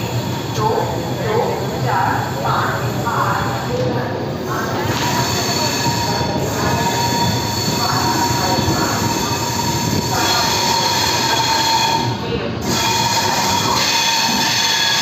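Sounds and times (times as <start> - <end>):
wheels rumbling on rail: 0.0 - 15.0
high-pitched wheel squeal: 4.9 - 15.0.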